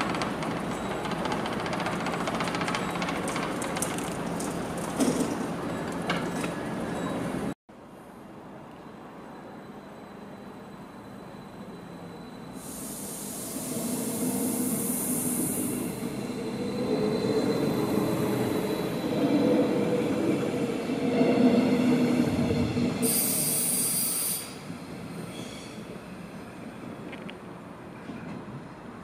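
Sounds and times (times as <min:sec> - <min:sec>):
train wheel squeal: 0:00.0 - 0:03.7, 0:08.9 - 0:26.0
electric train humming and whining: 0:08.2 - 0:29.0.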